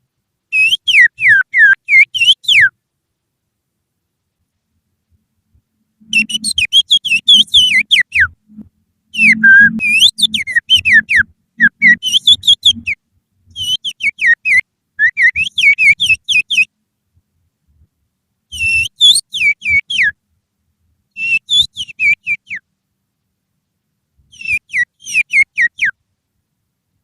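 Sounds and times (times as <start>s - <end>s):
finger whistling birdsong: 0.5s - 2.7s, 6.0s - 8.4s, 9.1s - 16.7s, 18.5s - 20.2s, 21.2s - 22.6s, 24.3s - 26.0s.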